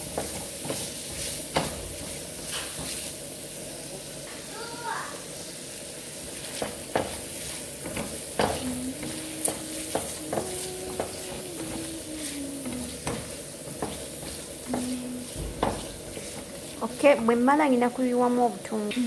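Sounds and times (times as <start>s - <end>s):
liver sizzling in frying pan: 0.0s - 18.9s
spatula knocking against pan: 1.5s - 3.0s, 6.6s - 11.9s, 12.6s - 16.7s.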